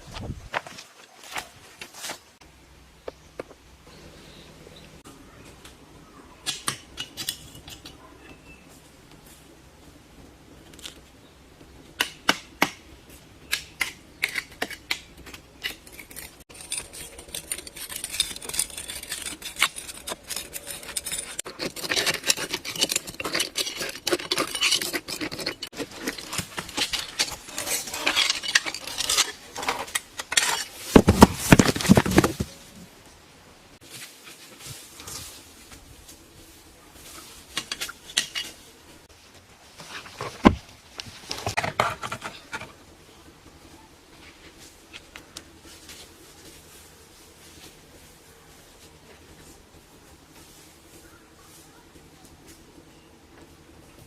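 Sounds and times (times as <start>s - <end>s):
hard objects clinking and scraping: 15.6s - 32.6s.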